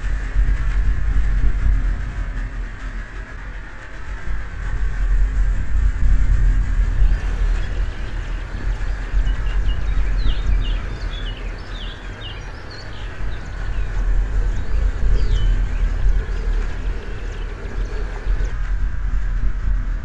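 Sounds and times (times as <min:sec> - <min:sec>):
steady low rumble: 0:00.0 - 0:20.0
songbirds chirping: 0:06.4 - 0:18.6.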